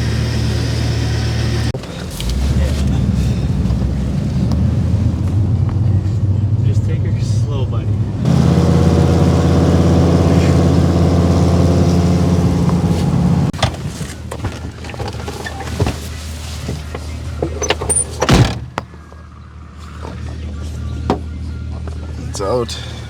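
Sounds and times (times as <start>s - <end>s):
vehicle engine at raised revs: 0.0s - 13.9s
clunks and knocks: 12.0s - 19.2s, 19.9s - 22.1s
loud thunk: 18.2s - 18.9s.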